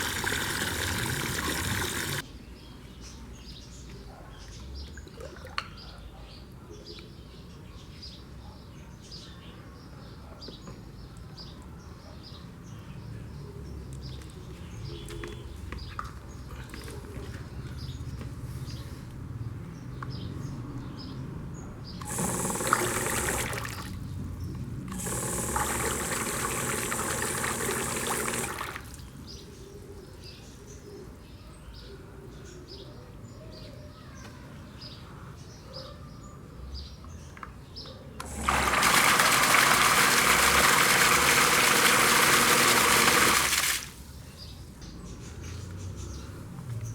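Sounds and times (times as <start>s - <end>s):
water pouring: 0.0s - 2.2s, 22.0s - 24.0s, 24.9s - 29.1s, 38.2s - 44.2s
birds chirping: 0.0s - 5.1s.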